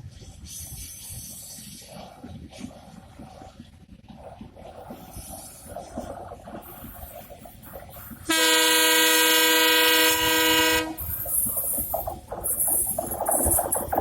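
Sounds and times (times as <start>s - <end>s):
locomotive air horn blast: 8.3s - 11.1s.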